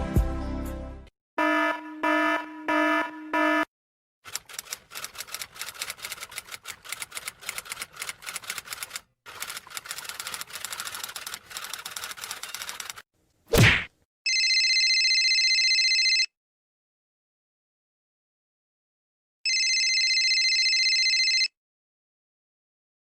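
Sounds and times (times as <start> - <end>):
rapid typing keystrokes: 4.3 - 13.0.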